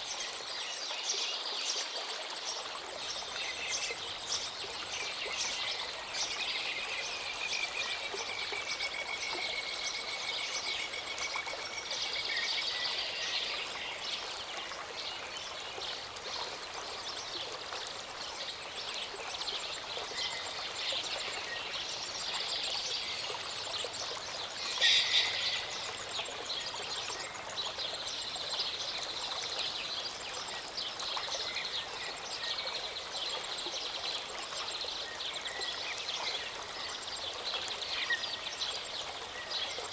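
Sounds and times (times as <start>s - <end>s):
stream running: 0.0s - 39.9s
birds singing and chirping: 24.5s - 26.0s.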